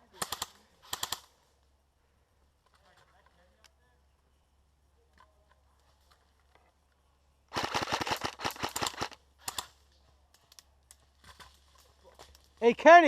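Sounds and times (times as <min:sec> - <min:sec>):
airsoft gun firing: 0:07.5 - 0:09.7.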